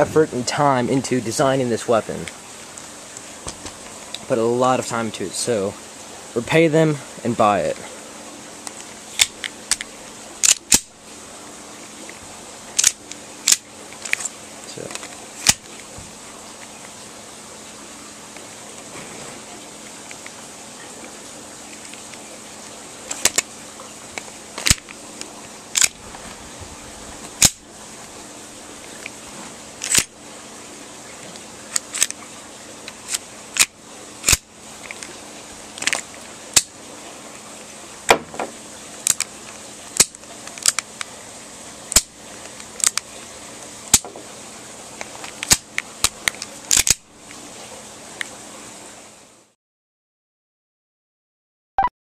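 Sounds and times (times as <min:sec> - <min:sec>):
pistol slide snapping: 0:09.2 - 0:10.9, 0:12.8 - 0:14.3, 0:23.1 - 0:23.4, 0:24.6 - 0:24.8, 0:25.8 - 0:26.0, 0:27.4 - 0:27.6, 0:29.8 - 0:30.1, 0:33.1 - 0:34.4, 0:40.0 - 0:40.9, 0:45.4 - 0:47.0.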